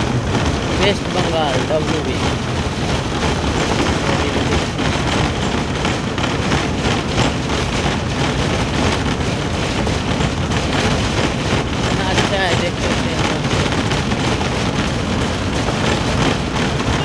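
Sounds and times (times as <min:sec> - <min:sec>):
diesel truck engine running: 0:00.0 - 0:17.0
road noise rushing: 0:00.0 - 0:17.0.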